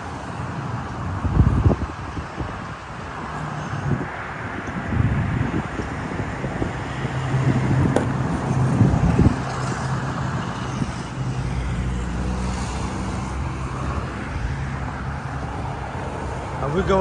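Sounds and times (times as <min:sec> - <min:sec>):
knocks: 0:07.8 - 0:08.6.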